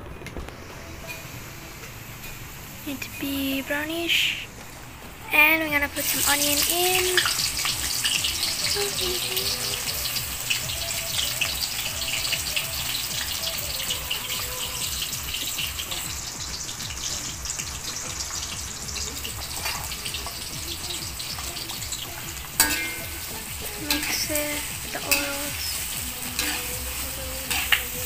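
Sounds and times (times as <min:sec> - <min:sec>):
onions sizzling in hot oil: 0:00.6 - 0:28.0.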